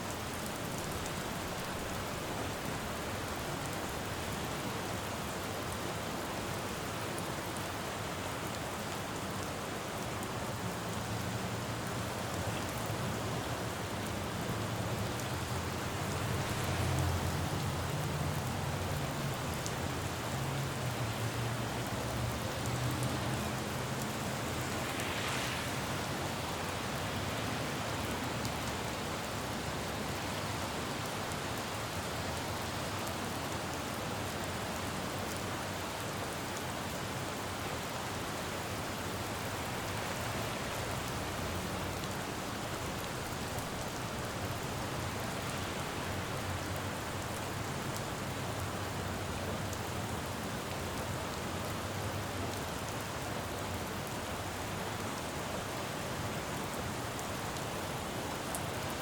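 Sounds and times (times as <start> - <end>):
rain on a road: 0.0 - 59.0
low traffic hum: 9.8 - 33.5, 37.6 - 58.6.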